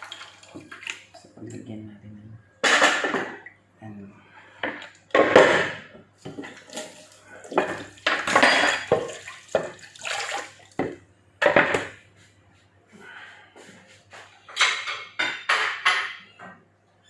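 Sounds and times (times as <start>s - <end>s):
dishes and utensils clattering: 2.6s - 3.5s, 4.6s - 6.9s, 7.5s - 9.8s, 10.8s - 12.0s, 14.2s - 16.6s.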